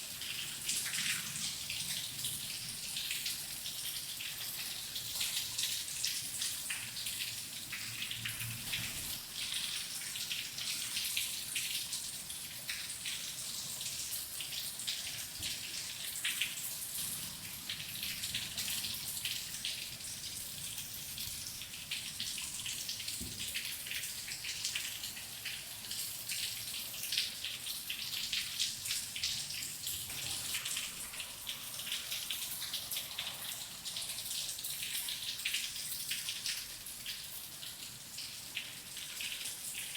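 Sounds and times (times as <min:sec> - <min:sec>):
steady rain: 0:15.0 - 0:39.9.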